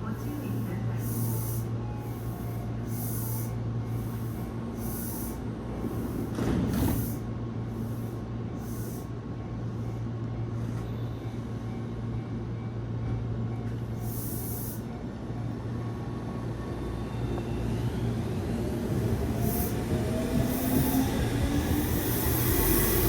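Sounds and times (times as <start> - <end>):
train low hum: 0.0 - 23.0
train motor whine: 16.9 - 23.0.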